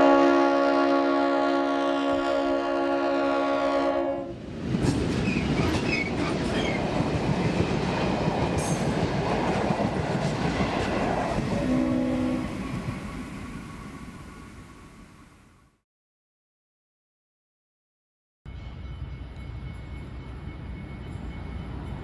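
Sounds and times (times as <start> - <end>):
train horn: 0.0 - 4.4, 11.5 - 12.8
train rumbling past: 0.0 - 15.7, 18.5 - 22.0.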